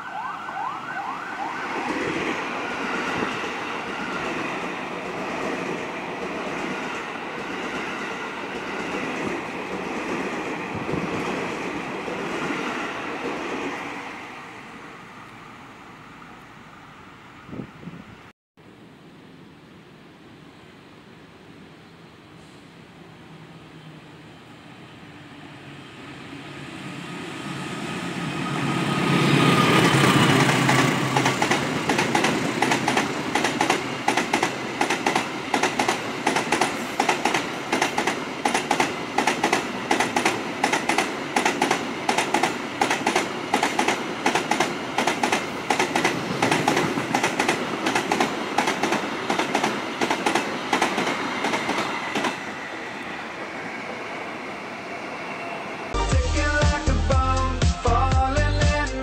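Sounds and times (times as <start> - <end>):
locomotive passing: 0.0 - 17.5, 23.7 - 56.0
train wheels clacking over rail joints: 29.8 - 52.4.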